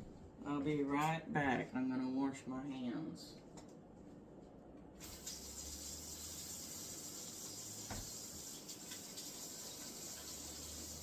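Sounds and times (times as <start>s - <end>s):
kitchen tap running: 5.0s - 11.0s.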